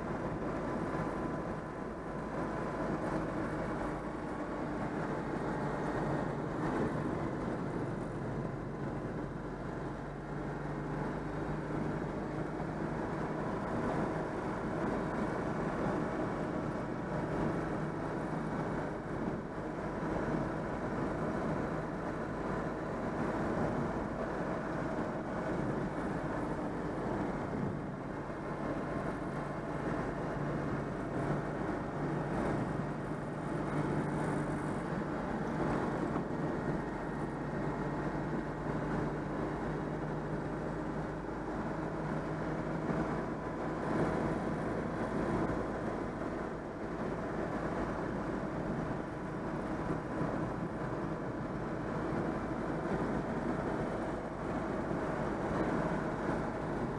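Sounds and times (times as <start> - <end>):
car engine running: 0.0 - 56.9
road noise: 0.0 - 56.9.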